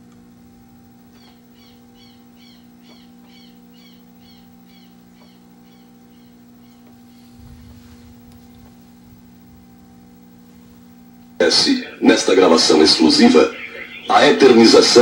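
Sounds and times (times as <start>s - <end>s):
electrical hum: 0.0s - 15.0s
bird chirping: 1.1s - 8.9s, 12.9s - 14.8s
low rumble: 7.0s - 11.4s.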